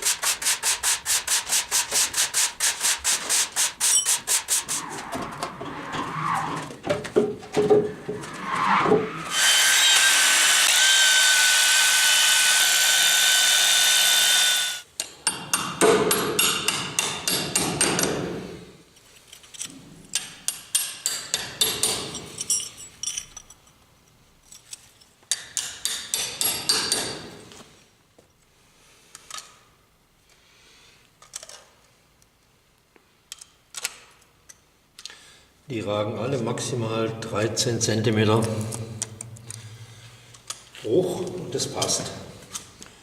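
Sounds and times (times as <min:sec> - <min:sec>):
power tool running: 0:09.3 - 0:14.8
sharp knocks on metal: 0:15.3 - 0:18.2.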